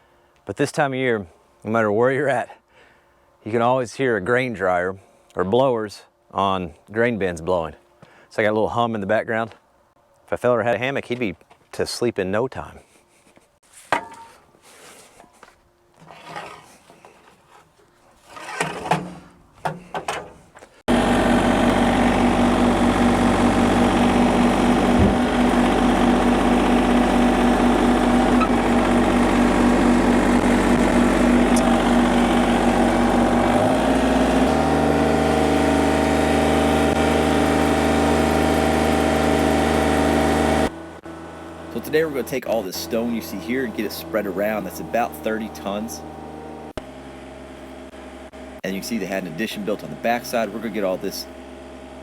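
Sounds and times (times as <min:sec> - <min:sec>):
tractor diesel engine running: 0:20.9 - 0:52.0.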